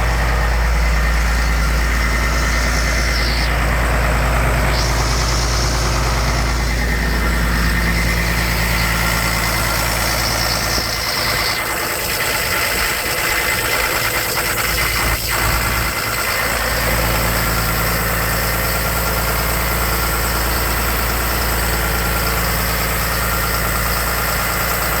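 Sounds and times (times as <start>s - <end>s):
air compressor engine running: 0.0s - 25.0s.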